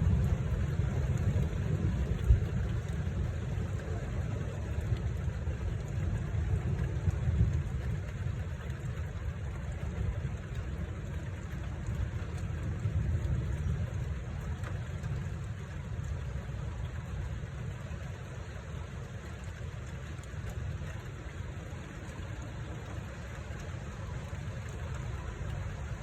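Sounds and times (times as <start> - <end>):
distant thunder rumble: 0.0 - 16.9.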